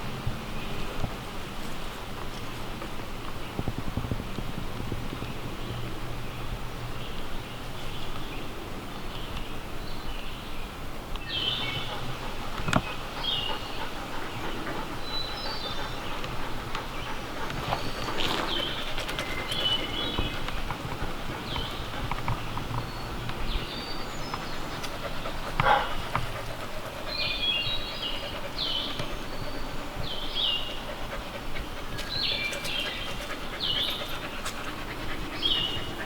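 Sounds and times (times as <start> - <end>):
dogs panting heavily: 11.3 - 36.0.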